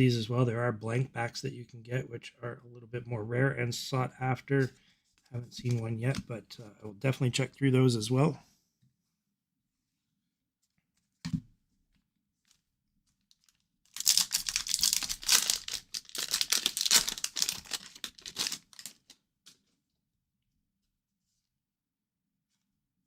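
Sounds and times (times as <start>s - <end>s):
wrapper tearing and crinkling: 13.3s - 19.2s.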